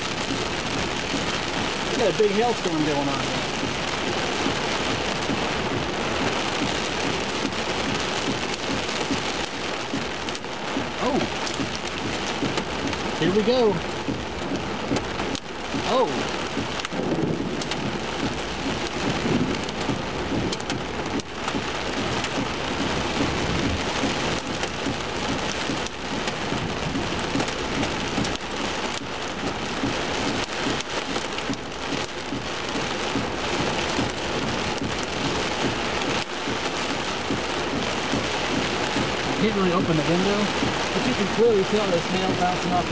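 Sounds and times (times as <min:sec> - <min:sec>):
hail and rain on truck roof: 0:00.0 - 0:42.9.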